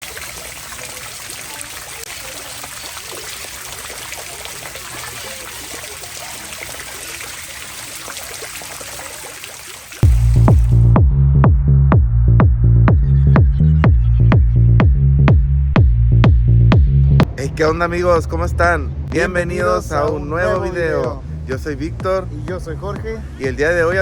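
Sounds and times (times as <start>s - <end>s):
running water splashing: 0.0s - 11.0s
electronic music with heavy beat: 10.0s - 17.4s, 19.1s - 24.0s.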